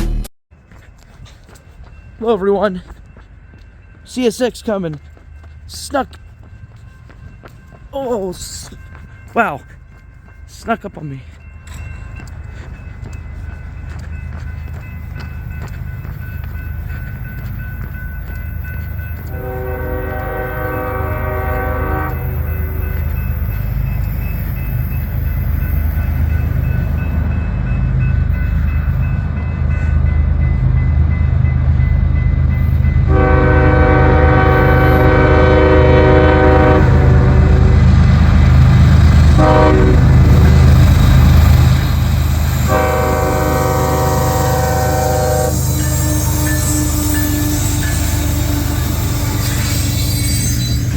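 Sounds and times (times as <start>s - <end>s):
diesel locomotive engine rumble: 0.0s - 50.9s
train horn blasts: 19.3s - 22.9s, 33.0s - 38.0s, 39.2s - 40.5s, 42.6s - 50.6s.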